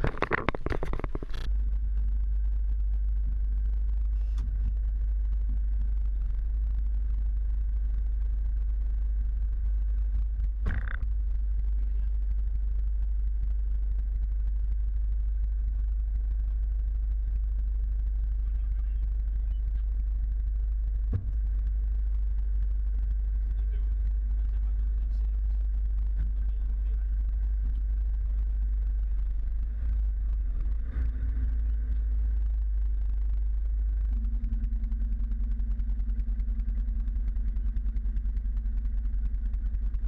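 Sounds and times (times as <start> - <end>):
jumble of knocks: 0.0 - 1.5
truck engine rumbling: 0.0 - 40.0.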